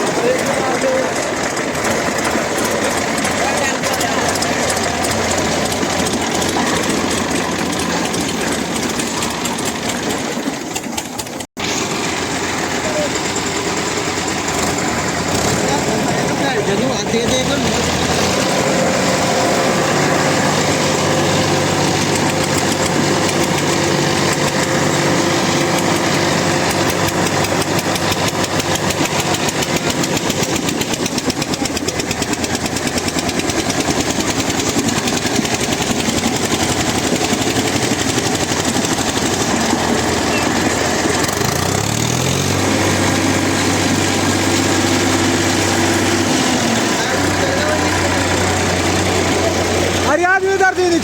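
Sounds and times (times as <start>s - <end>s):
diesel tractor engines under load: 0.0s - 51.0s.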